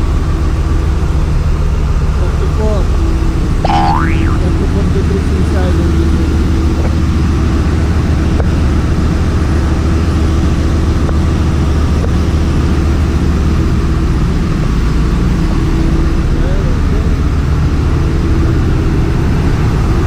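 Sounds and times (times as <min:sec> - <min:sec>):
engine room machinery humming: 0:00.0 - 0:20.0
faint constant tone: 0:02.3 - 0:07.3.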